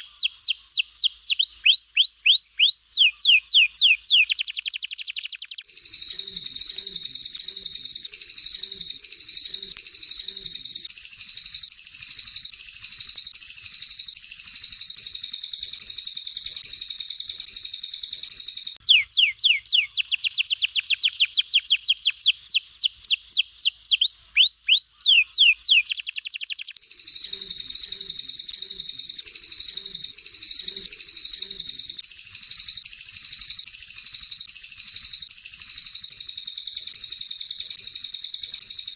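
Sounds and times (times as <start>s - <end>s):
fast downward-sliding whistles: 0.0s - 7.3s, 18.3s - 29.6s
songbirds chattering: 0.0s - 35.3s.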